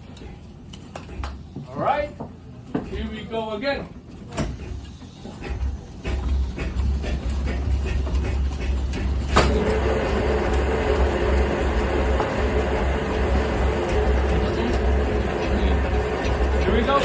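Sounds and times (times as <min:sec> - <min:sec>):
cutter cutting wood: 0:09.5 - 0:17.0
electric motor humming: 0:09.5 - 0:17.0.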